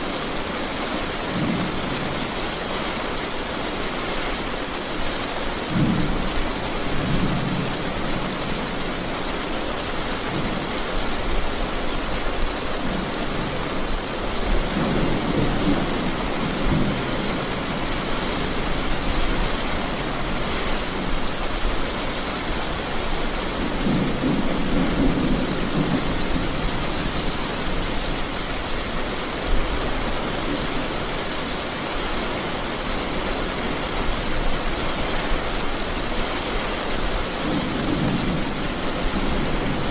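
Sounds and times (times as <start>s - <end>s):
steady rain falling: 0.0s - 39.9s
thunder rumbling: 23.4s - 28.9s.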